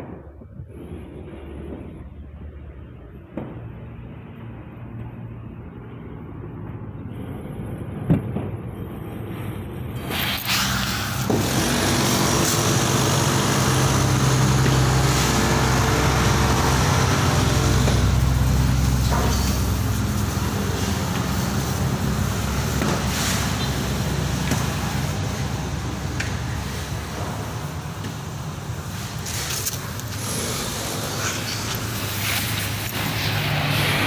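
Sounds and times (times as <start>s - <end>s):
vehicle engine running: 11.3s - 34.0s.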